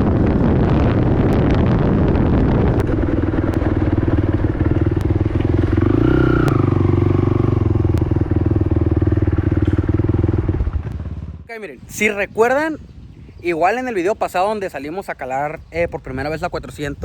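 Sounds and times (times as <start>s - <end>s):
atv engine running: 0.0s - 11.5s
wind noise: 0.0s - 17.0s.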